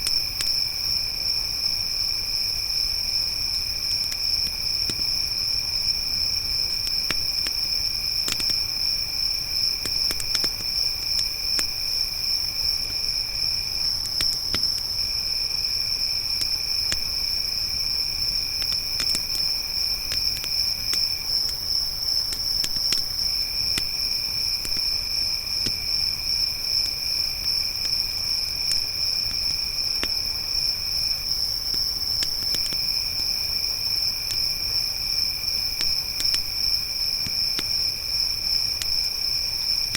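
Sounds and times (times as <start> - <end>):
campfire pops and crackles: 0.0 - 1.3, 3.5 - 30.3, 31.6 - 33.4, 34.2 - 39.9
crickets trilling: 0.0 - 39.9.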